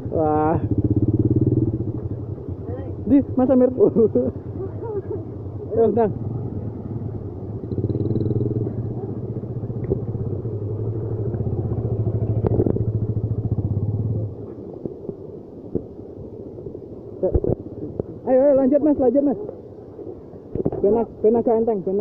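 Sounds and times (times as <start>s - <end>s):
motorcycle engine at low revs: 0.0s - 16.0s.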